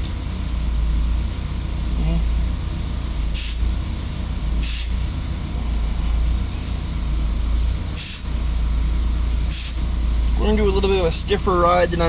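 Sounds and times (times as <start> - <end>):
pickup engine idling: 0.0 - 12.0
short hisses: 3.4 - 3.7, 4.6 - 5.0, 8.0 - 8.3, 9.5 - 9.8.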